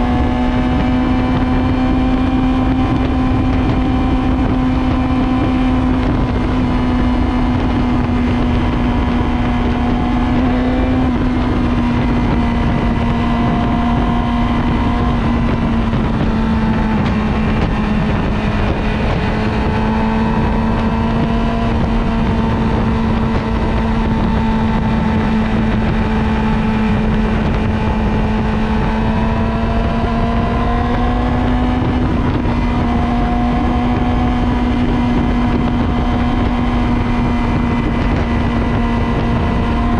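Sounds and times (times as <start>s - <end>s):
motorcycle engine riding: 0.0s - 39.9s
wind rumbling on microphone: 0.0s - 39.9s.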